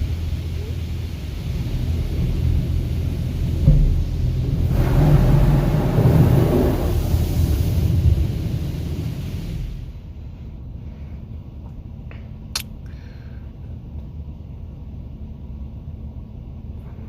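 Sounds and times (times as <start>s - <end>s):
truck idling low rumble: 0.0s - 17.0s
sharp click: 12.5s - 12.8s.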